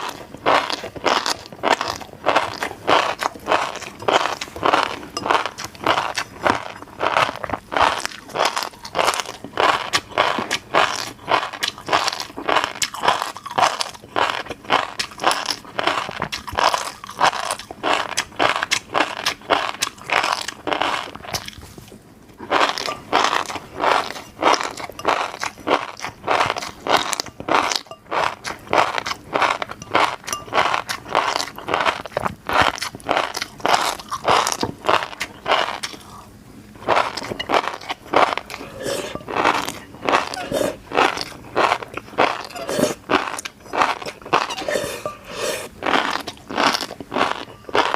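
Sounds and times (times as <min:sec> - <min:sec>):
fish roe popping while chewing: 0:22.5 - 0:36.0.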